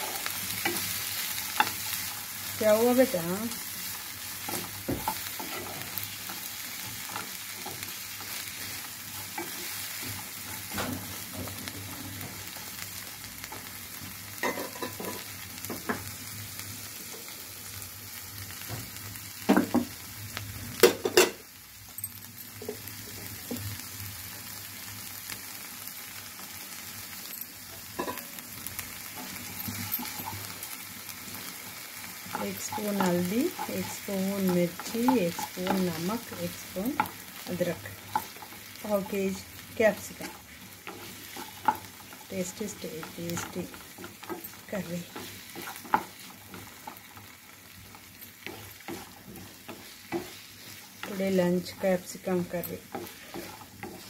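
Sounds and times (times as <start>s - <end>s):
vegetables sizzling in a pan: 0.0s - 54.0s
spatula scraping and tapping pan: 32.3s - 39.1s, 40.0s - 54.0s.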